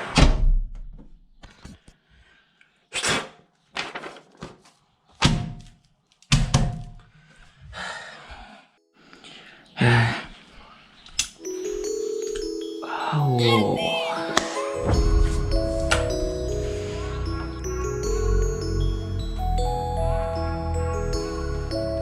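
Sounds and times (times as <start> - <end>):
thuds and knocks: 5.2 - 5.7, 6.3 - 7.0
steady roar: 19.3 - 22.0.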